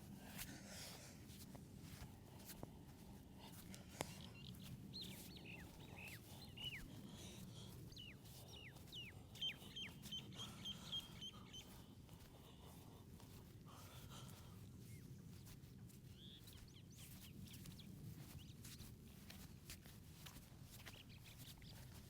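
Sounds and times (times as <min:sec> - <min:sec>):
bird chirping faintly: 0:07.9 - 0:11.9.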